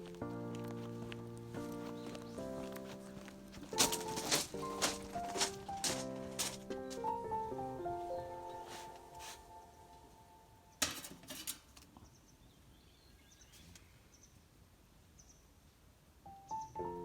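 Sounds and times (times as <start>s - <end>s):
background music: 0.0s - 10.8s, 16.3s - 17.0s.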